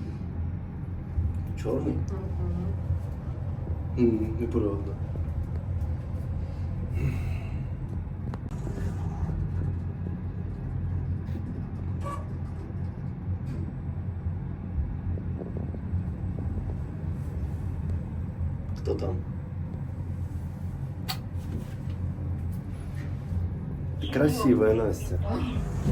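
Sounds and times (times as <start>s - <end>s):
low mechanical rumble: 0.0s - 25.9s.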